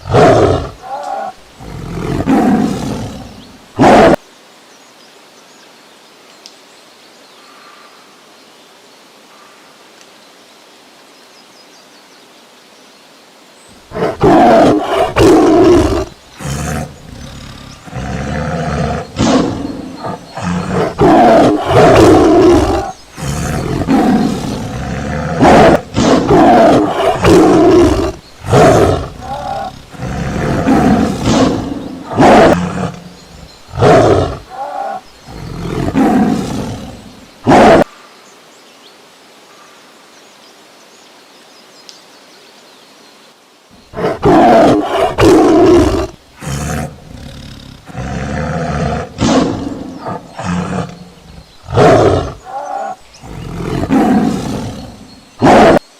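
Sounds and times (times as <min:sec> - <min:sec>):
tiger roaring: 0:00.0 - 0:04.2, 0:13.8 - 0:37.9, 0:43.8 - 0:55.8
faint outdoor hiss: 0:00.0 - 0:55.9.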